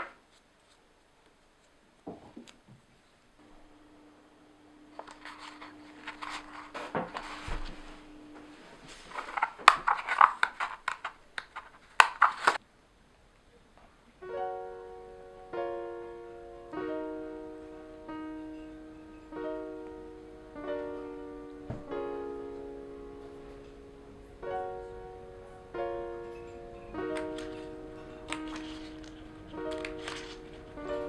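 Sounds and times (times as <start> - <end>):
soft piano and plucked-string music: 14.2 - 31.0.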